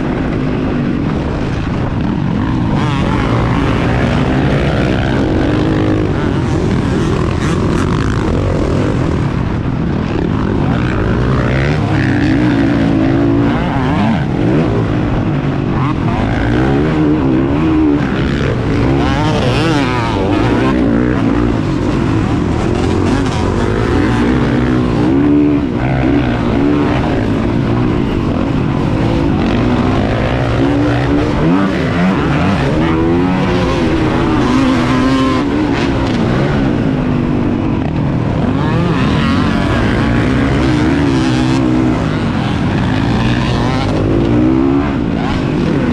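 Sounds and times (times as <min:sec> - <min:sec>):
motocross bike engine revving: 0:00.0 - 0:45.9.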